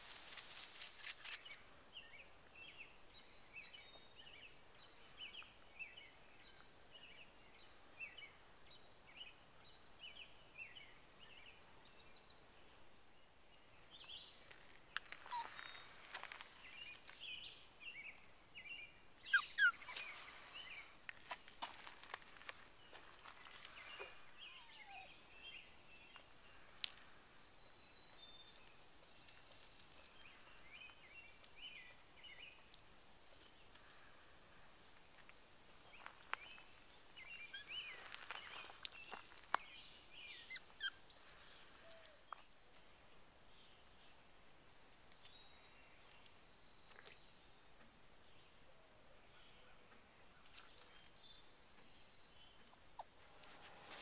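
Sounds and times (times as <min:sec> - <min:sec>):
small birds chirping: 0:13.2 - 0:54.0.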